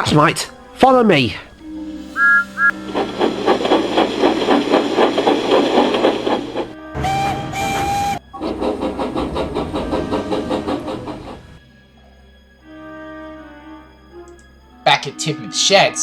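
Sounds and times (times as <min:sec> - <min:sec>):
steam locomotive chuffing: 0:00.0 - 0:12.3
steam whistle: 0:01.6 - 0:11.6.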